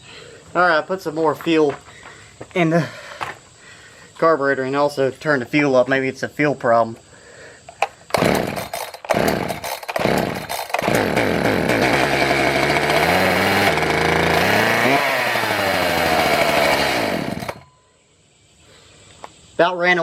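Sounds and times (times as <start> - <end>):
chainsaw engine sputtering and running: 8.1 - 17.7.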